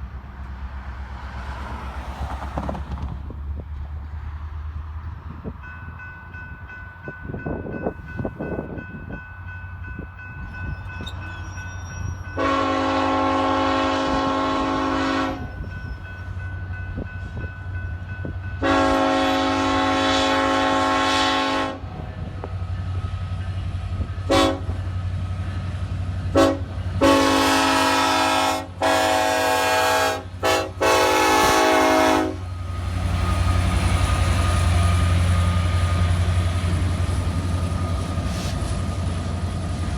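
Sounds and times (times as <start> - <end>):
locomotive engine rumble: 0.0 - 39.9
train horn blasts: 12.3 - 15.8, 18.6 - 22.4, 24.2 - 25.0, 26.3 - 32.6.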